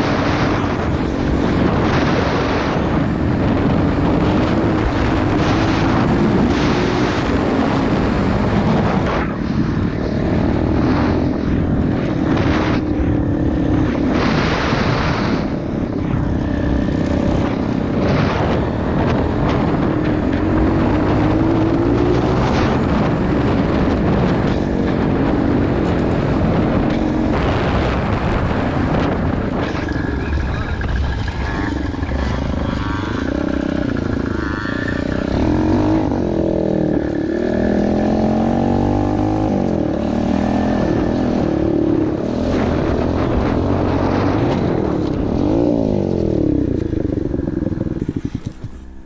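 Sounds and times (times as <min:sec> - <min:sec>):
motorbike engine running: 0:00.0 - 0:49.0.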